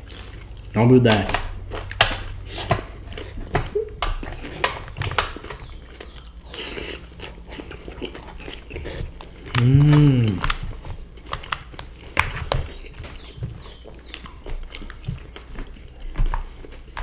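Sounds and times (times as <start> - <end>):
people chewing and biting food: 0.0 - 17.0.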